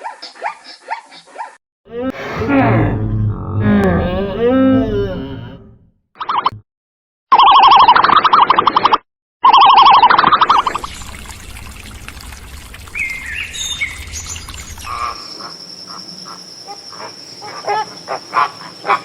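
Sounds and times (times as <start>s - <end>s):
electronic warbling tone: 10.4s - 15.2s
birds chirping: 12.8s - 19.0s.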